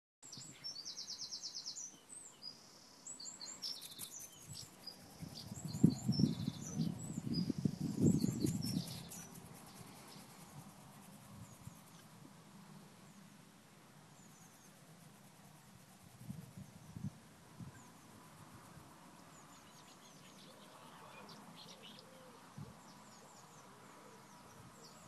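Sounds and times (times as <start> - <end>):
small birds chirping: 0.3 - 12.1.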